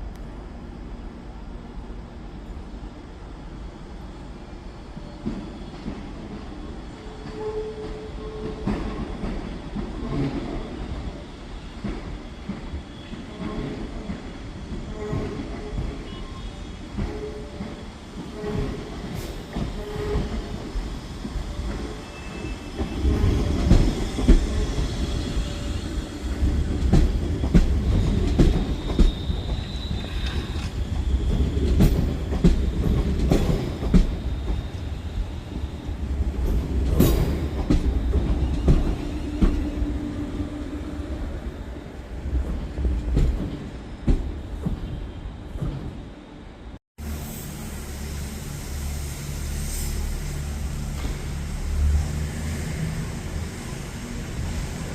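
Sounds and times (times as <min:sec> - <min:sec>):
train rumble: 0:00.0 - 0:54.9
high wheel squeal: 0:19.8 - 0:32.2
train wheels clattering over rail joints: 0:26.4 - 0:34.6.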